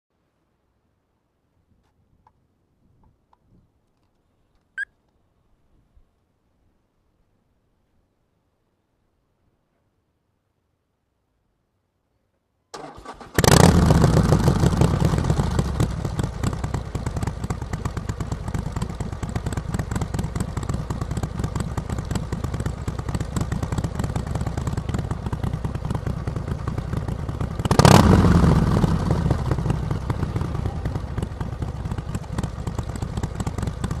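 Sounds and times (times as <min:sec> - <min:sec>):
motorcycle starter turning over: 0:12.7 - 0:14.0
motorcycle engine idling and revving: 0:12.8 - 0:34.0.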